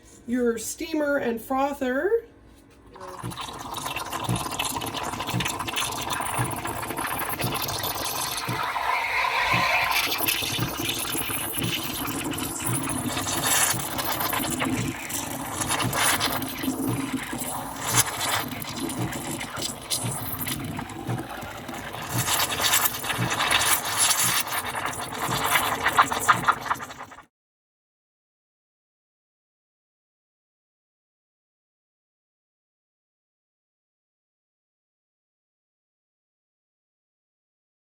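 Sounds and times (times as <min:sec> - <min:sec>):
steam wand hissing and sputtering: 0:03.0 - 0:27.2.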